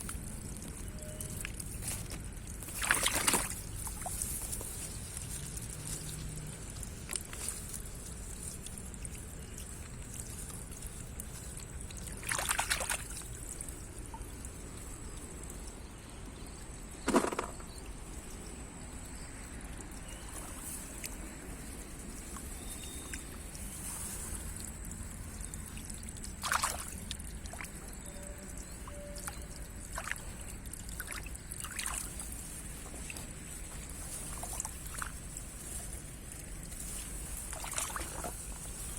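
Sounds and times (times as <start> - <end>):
water sloshing and splashing: 0.0 - 38.9
faint high whine: 0.8 - 1.5.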